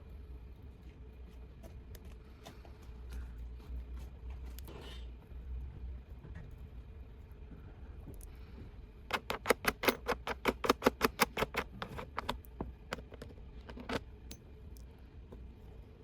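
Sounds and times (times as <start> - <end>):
sharp clicks: 9.1 - 13.2.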